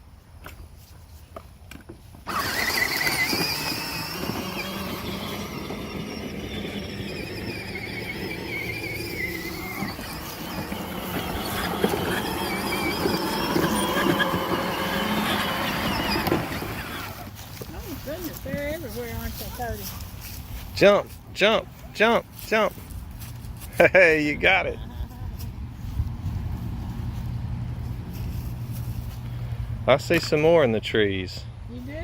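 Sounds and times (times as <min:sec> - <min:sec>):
electric toy car motor whining: 0:02.3 - 0:17.4.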